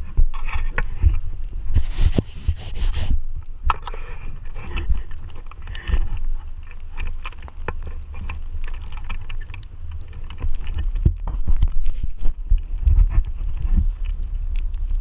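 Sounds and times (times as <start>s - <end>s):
footsteps crunching in snow: 1.7s - 3.2s.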